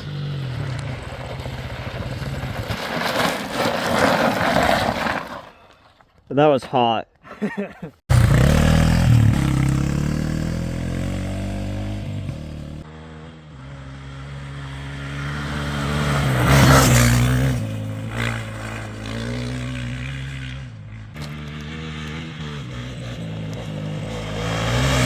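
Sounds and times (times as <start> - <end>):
dirt bike engine revving: 0.0 - 2.4, 8.1 - 25.0.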